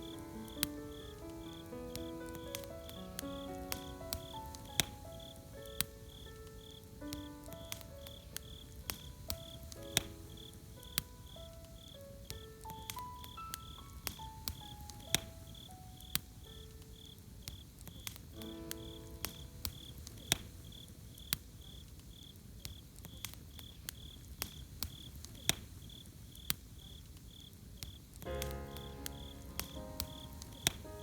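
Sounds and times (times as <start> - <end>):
soft musical notes: 0.0 - 16.9, 28.3 - 31.0
campfire crackling and popping: 0.0 - 31.0
cricket chirping: 0.0 - 31.0.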